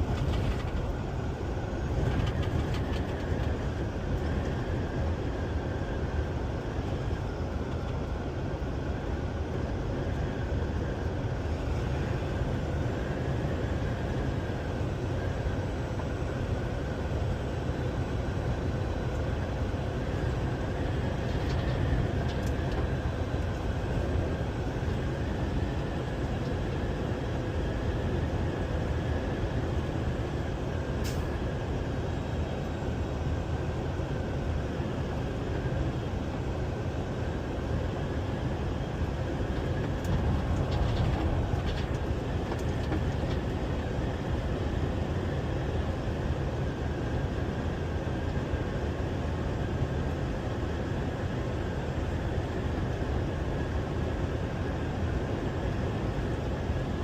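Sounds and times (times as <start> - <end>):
heavy vehicle rumbling: 0.0 - 34.5, 35.4 - 45.8.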